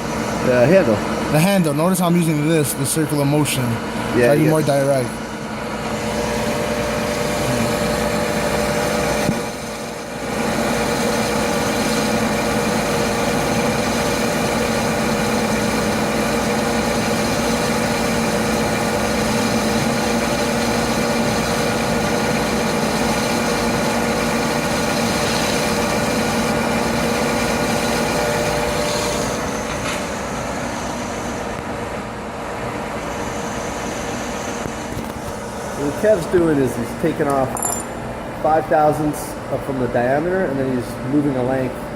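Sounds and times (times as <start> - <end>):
metal lathe humming: 0.0 - 29.5.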